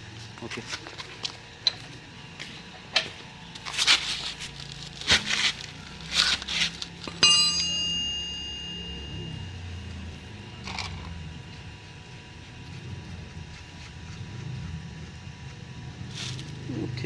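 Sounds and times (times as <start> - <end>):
sharp ringing metal clink: 7.1 - 9.6.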